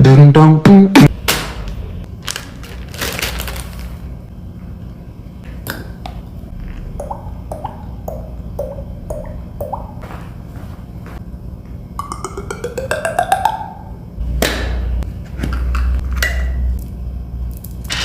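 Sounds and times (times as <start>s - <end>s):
steady low hum: 1.1s - 18.0s
beatboxer pops dropping in pitch: 12.0s - 14.8s.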